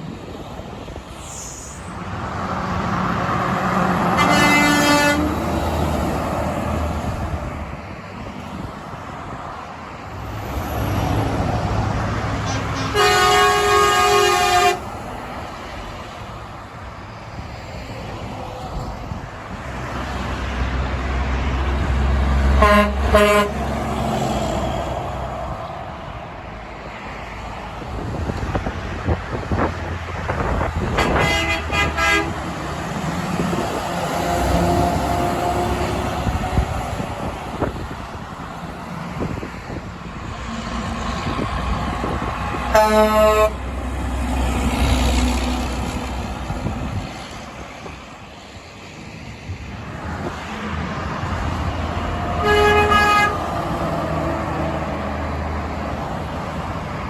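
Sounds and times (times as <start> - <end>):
road traffic passing: 0.0 - 57.0
truck horn toots: 4.1 - 5.6, 12.4 - 15.0, 22.5 - 23.8, 30.9 - 32.6, 42.7 - 43.7, 52.2 - 53.7.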